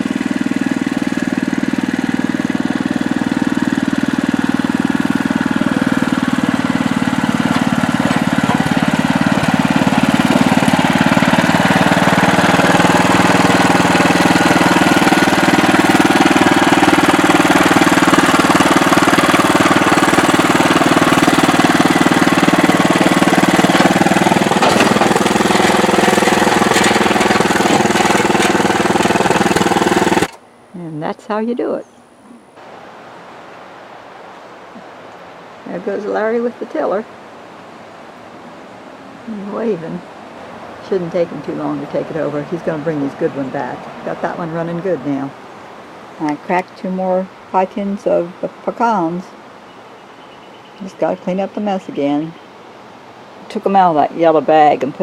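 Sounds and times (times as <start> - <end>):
small petrol engine running: 0.0 - 30.4.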